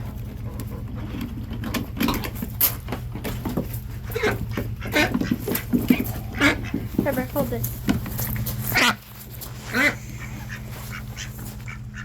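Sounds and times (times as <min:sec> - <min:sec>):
steady low hum: 0:00.0 - 0:12.0
ducks quacking: 0:03.8 - 0:12.0.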